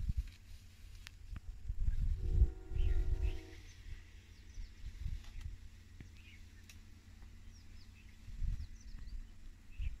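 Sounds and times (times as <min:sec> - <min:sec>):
low buffeting rumble: 0:00.0 - 0:10.0
birds chirping: 0:02.6 - 0:10.0.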